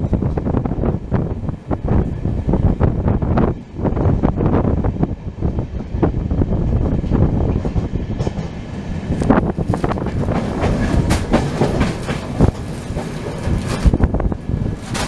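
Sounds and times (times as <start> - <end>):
train wheels rumbling on rails: 0.0 - 15.0
wheels clicking over rail joints: 8.2 - 15.0.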